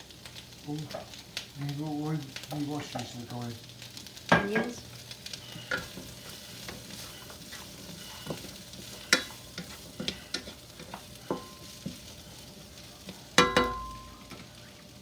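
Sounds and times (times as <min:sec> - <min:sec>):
onions sizzling in a pan: 0:00.0 - 0:15.0
utensils clinking on dishes: 0:13.4 - 0:14.4.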